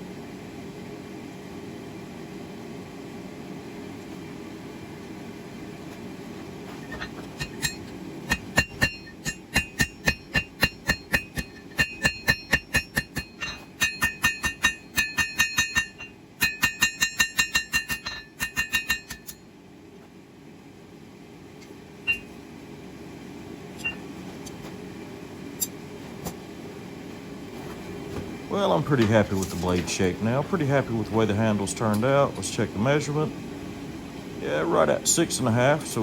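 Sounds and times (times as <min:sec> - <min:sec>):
hammer striking steel on anvil: 0:06.9 - 0:19.4, 0:22.1 - 0:22.3.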